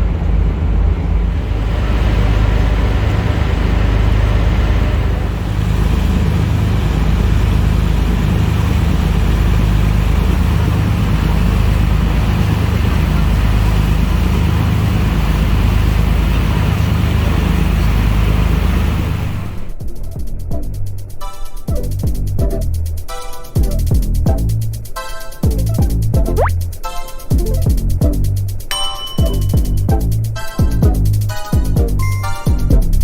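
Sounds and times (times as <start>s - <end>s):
wind and water rushing: 0.0s - 19.8s
ship engine droning: 0.0s - 33.0s.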